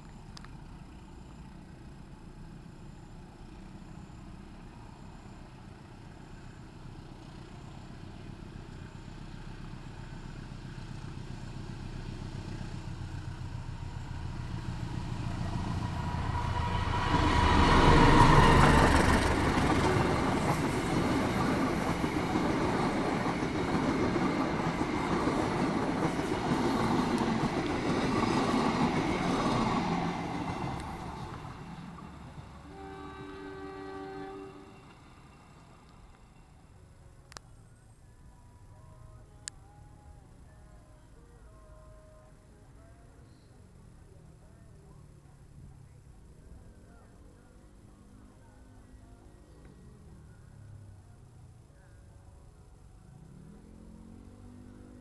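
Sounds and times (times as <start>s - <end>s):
diesel locomotive passing: 0.4s - 55.0s
train coaches rolling on rails: 3.6s - 37.1s.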